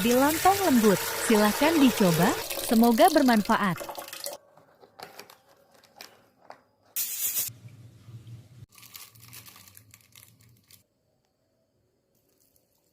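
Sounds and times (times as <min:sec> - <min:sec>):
loud tearing or crinkling: 0:08.7 - 0:10.8.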